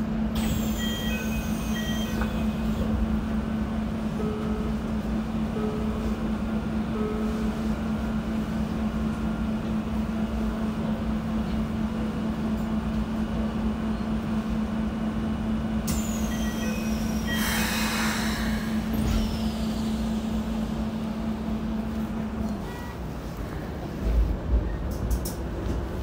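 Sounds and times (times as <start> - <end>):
train low hum and track rumble: 0.0 - 26.0.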